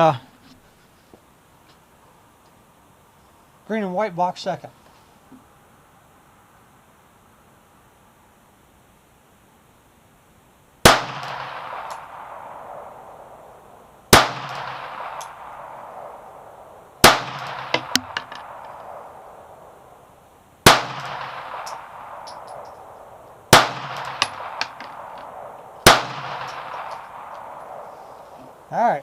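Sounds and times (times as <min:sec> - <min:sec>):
pistol shots with echo: 0:10.8 - 0:19.5, 0:20.6 - 0:27.9.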